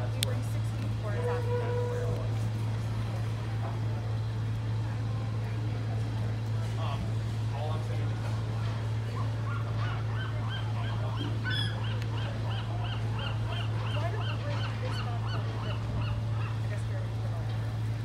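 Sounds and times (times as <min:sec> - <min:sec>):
steady low hum: 0:00.0 - 0:18.0
bird repeated calls: 0:09.5 - 0:16.6.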